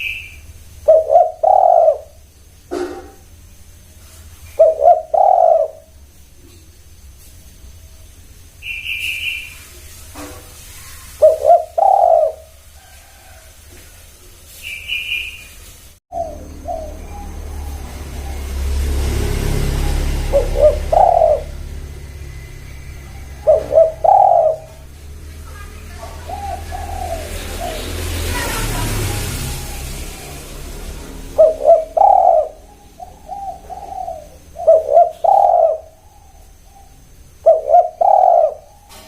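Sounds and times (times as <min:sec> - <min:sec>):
doves cooing: 0:00.0 - 0:06.8, 0:10.2 - 0:14.1, 0:16.1 - 0:39.0
low rumble and hiss: 0:00.0 - 0:18.4, 0:29.6 - 0:39.0
short high bird chirps: 0:08.6 - 0:09.8, 0:14.6 - 0:15.6.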